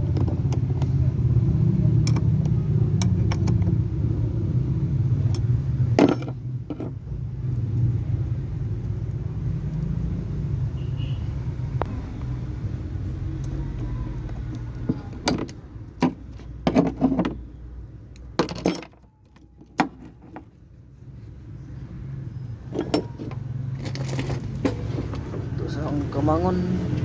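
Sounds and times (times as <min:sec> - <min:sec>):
hand tools clinking on metal: 0:05.4 - 0:06.9, 0:22.7 - 0:24.8.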